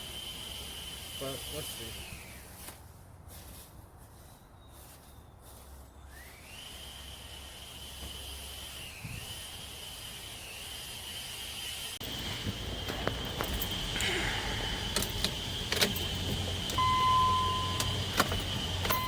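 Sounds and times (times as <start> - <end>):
insects buzzing: 6.1 - 19.0.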